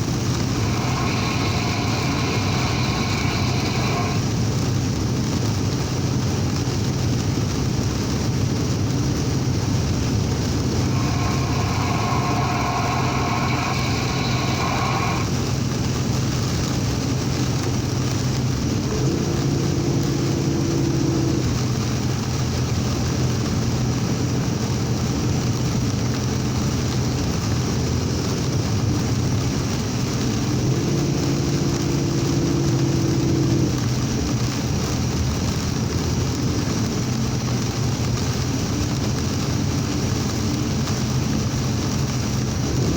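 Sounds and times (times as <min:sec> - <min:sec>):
low hum: 0:00.0 - 0:05.0, 0:09.7 - 0:25.1, 0:26.0 - 0:35.7
heavy rain: 0:00.0 - 0:42.9
truck engine drone: 0:00.0 - 0:42.9
tyre road noise: 0:00.0 - 0:42.9.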